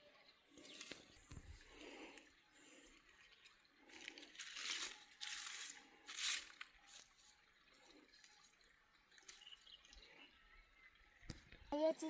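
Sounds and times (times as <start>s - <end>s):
short scraping or crunching noises: 4.0s - 6.7s.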